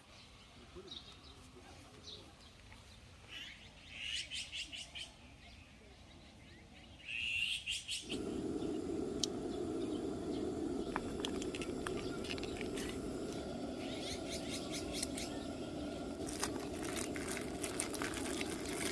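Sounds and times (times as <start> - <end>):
songbird chirping: 0.0 - 18.9
bird calls: 7.0 - 18.9
steady low noise: 8.1 - 18.9.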